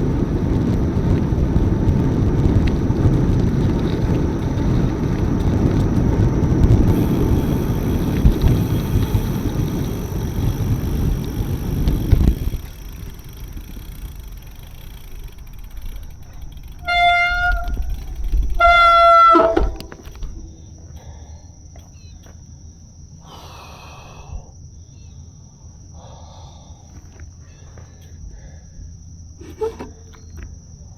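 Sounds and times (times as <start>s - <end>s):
wind rushing over microphone: 0.0s - 20.8s.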